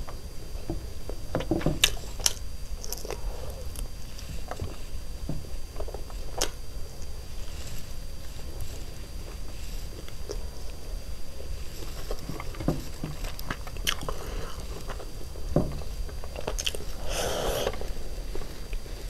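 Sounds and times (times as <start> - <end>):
chewing with lip smacks: 8.7 - 10.8, 11.4 - 15.4, 16.0 - 18.9.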